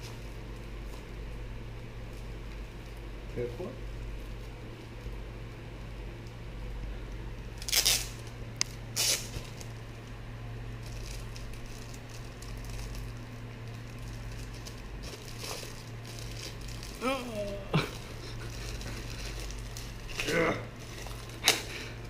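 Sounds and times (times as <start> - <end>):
steady low hum: 0.0 - 22.0
paper rustling and tearing: 9.0 - 9.7, 18.0 - 22.0.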